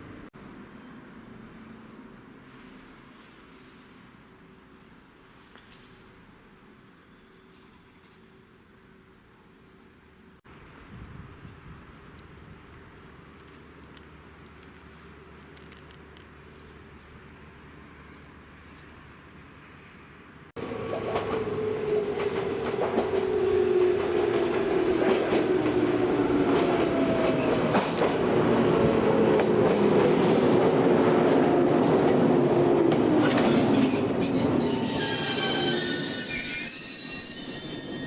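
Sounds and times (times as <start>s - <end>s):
high wheel squealing: 33.1s - 38.0s.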